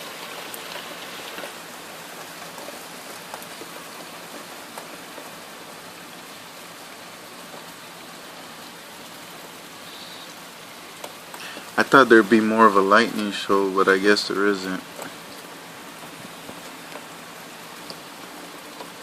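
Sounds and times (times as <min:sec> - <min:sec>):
heavy rain hissing: 0:00.0 - 0:19.0
raindrop ticks: 0:00.4 - 0:05.8, 0:11.0 - 0:15.6, 0:16.3 - 0:17.2, 0:17.8 - 0:19.0.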